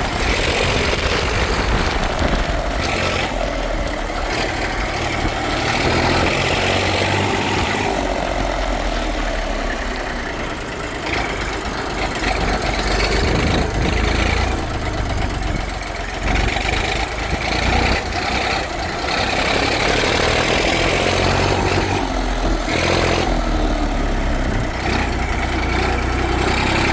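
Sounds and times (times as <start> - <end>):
tractor diesel engine idling: 0.0 - 26.9.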